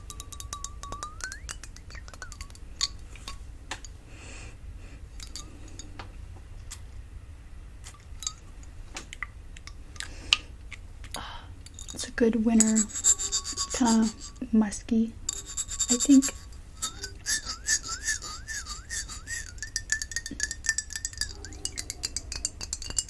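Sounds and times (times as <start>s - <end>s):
fingernails tapping on glass bottle: 0.0s - 3.4s, 15.3s - 23.0s.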